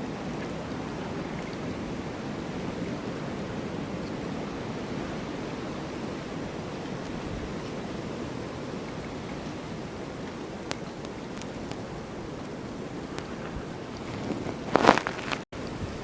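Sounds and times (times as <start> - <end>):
snowstorm wind blowing: 0.1 - 16.0.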